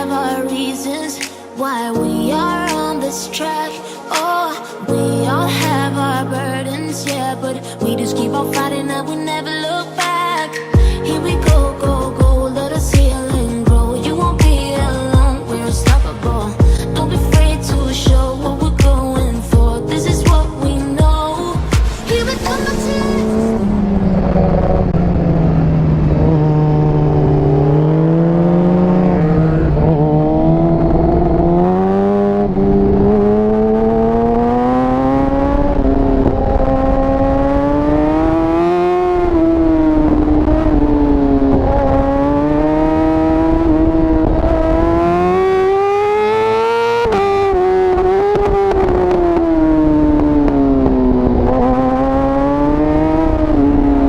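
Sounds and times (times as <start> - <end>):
motorcycle engine at full throttle: 22.7 - 54.0.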